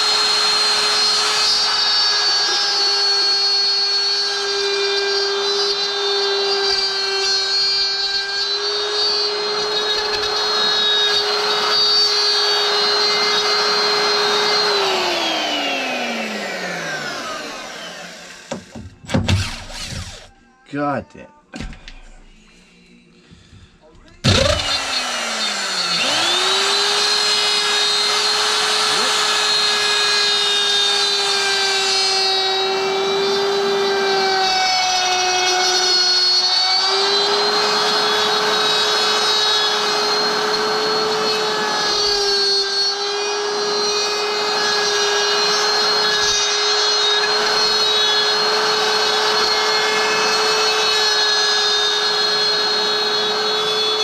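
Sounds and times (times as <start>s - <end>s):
power tool motor whine: 0.0s - 20.3s, 24.2s - 54.0s.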